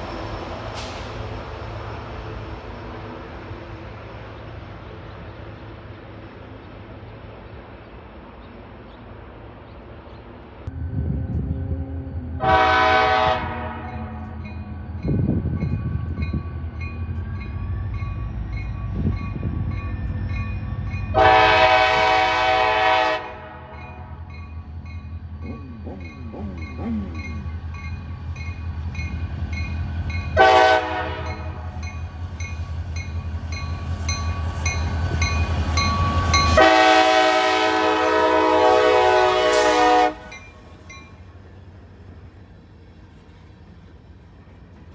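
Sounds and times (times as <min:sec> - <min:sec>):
passing train rumbling: 0:00.0 - 0:44.9
locomotive horn blasts: 0:12.4 - 0:14.4, 0:21.1 - 0:23.8, 0:30.4 - 0:31.6, 0:36.0 - 0:40.4.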